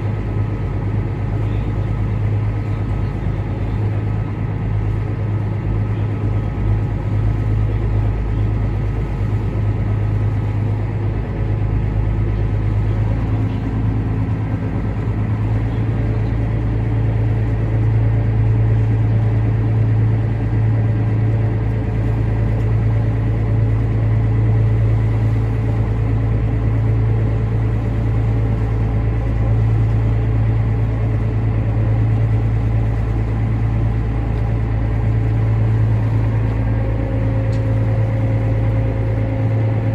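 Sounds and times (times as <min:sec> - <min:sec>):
ferry engine droning: 0:00.0 - 0:39.9.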